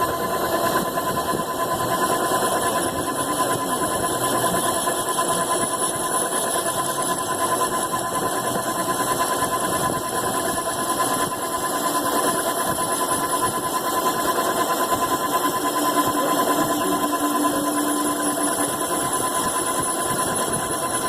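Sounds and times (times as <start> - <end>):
machine tool running: 0.0 - 21.0.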